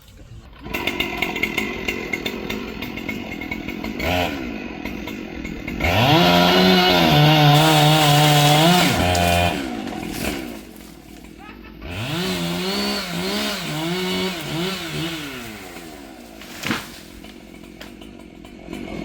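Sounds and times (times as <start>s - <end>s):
chainsaw revving: 0.2s - 19.0s.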